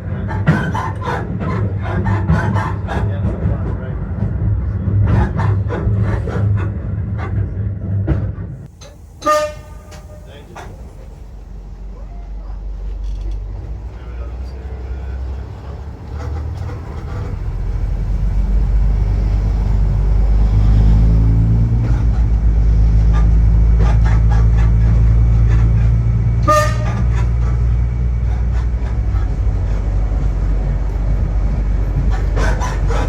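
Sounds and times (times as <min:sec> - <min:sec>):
diesel engine revving: 0:00.0 - 0:33.0
short horn toot: 0:09.2 - 0:10.3, 0:26.4 - 0:27.2.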